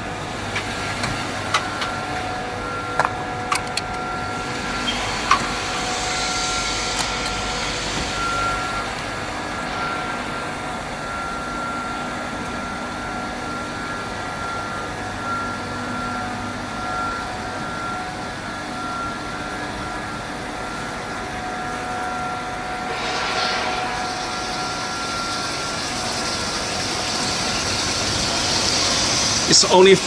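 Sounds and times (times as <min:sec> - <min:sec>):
ice machine humming: 0:00.0 - 0:12.6, 0:22.6 - 0:30.0
hissing rush: 0:04.6 - 0:10.8, 0:22.6 - 0:30.0.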